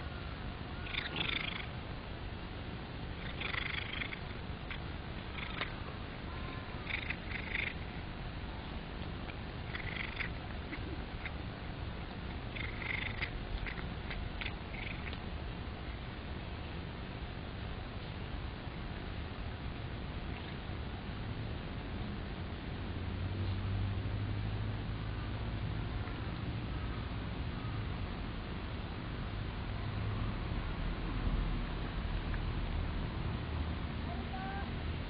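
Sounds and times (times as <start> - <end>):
cat purring: 0.8 - 1.7, 3.2 - 5.8, 6.8 - 8.1, 9.3 - 11.4, 12.3 - 15.2.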